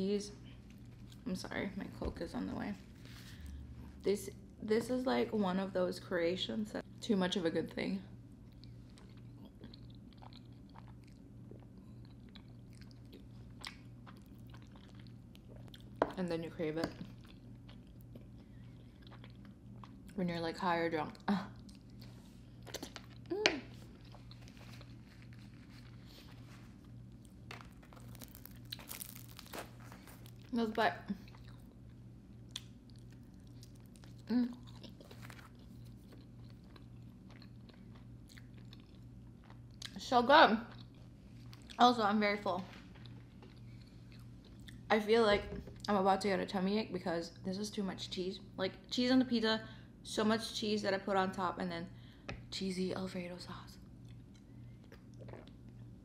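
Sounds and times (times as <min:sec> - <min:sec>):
faint low hum: 0:00.0 - 0:56.0
person chewing pizza: 0:00.4 - 0:01.3, 0:08.2 - 0:16.1, 0:17.0 - 0:20.2, 0:21.2 - 0:40.0, 0:40.7 - 0:41.8, 0:42.8 - 0:44.9, 0:53.8 - 0:56.0.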